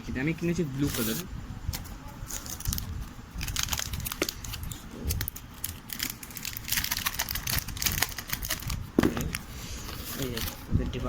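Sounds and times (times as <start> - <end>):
plastic packaging crinkling: 2.2 - 10.7.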